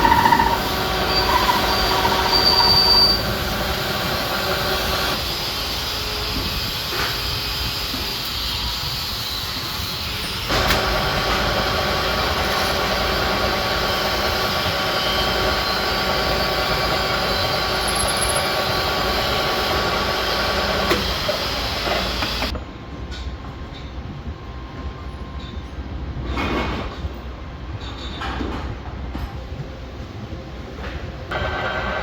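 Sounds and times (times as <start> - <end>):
machine running with a hiss: 0.0 - 22.6.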